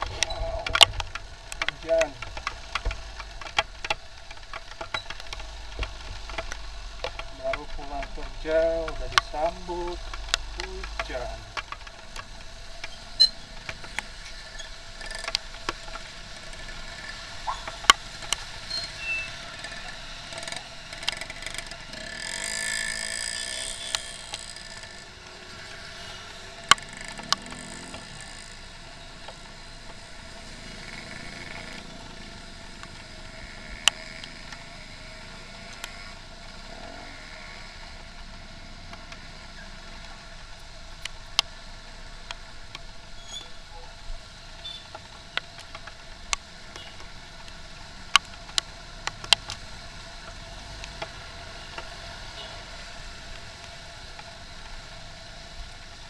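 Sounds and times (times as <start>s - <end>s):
sharp clicks: 0.0s - 18.8s, 26.6s - 28.6s
motorcycle engine and road hum: 0.0s - 56.0s.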